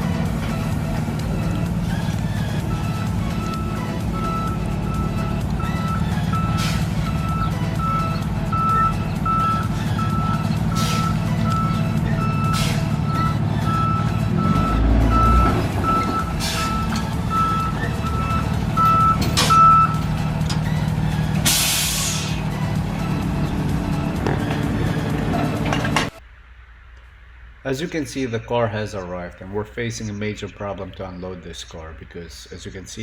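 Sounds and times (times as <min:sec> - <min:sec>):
truck engine running: 0:00.0 - 0:26.2
truck reversing alarm beeping: 0:00.0 - 0:26.2
air brake hiss: 0:06.5 - 0:07.0, 0:10.8 - 0:11.2, 0:12.5 - 0:13.0, 0:16.4 - 0:16.9, 0:21.4 - 0:22.5.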